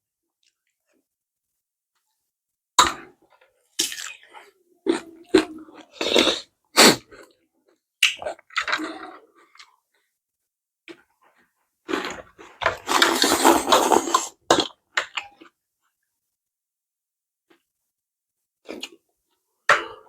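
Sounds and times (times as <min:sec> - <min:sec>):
person chewing noodles: 0:03.8 - 0:07.0, 0:11.9 - 0:14.7.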